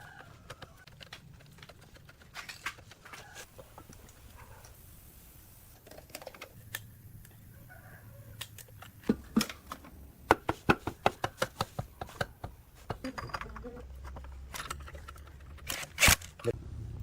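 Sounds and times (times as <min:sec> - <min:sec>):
rapid sharp clicks and knocks: 0:10.3 - 0:13.1.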